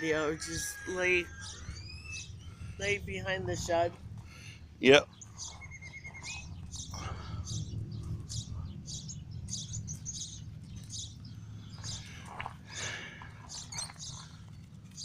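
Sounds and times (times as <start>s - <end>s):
small birds chirping: 0.0s - 15.0s
steady low rumble: 0.0s - 15.0s.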